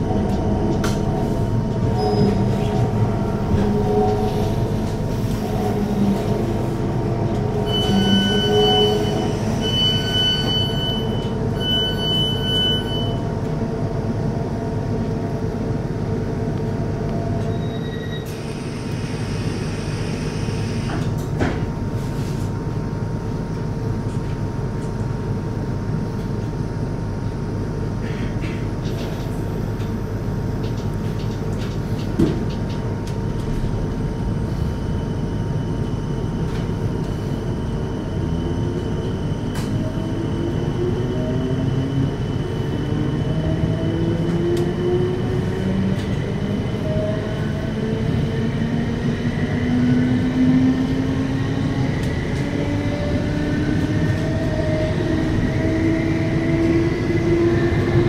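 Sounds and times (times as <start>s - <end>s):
high warning beeps: 7.6s - 13.2s.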